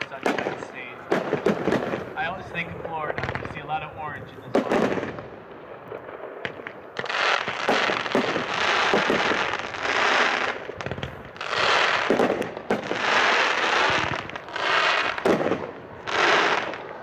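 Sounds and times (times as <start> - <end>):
fireworks popping and hissing: 0.0 - 17.0.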